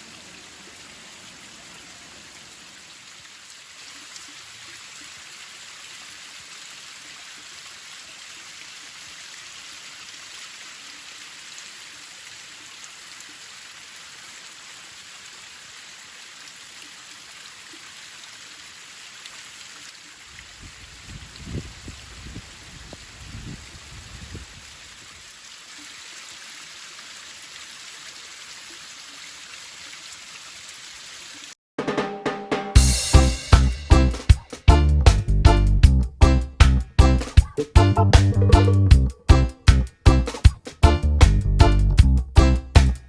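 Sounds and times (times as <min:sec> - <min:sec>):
steady water noise: 0:00.0 - 0:31.6.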